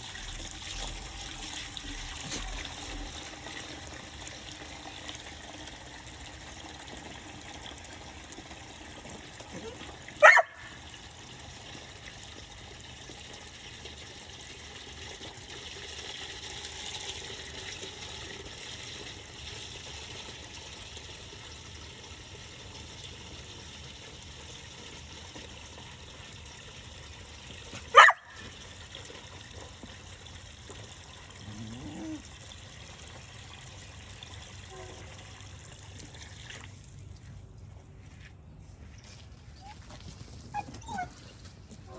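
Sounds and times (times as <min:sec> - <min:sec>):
dog barks: 0:09.6 - 0:10.8, 0:27.9 - 0:28.4.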